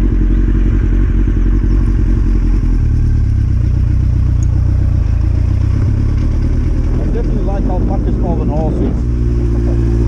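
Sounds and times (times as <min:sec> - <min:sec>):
motorcycle engine at low revs: 0:00.0 - 0:10.0.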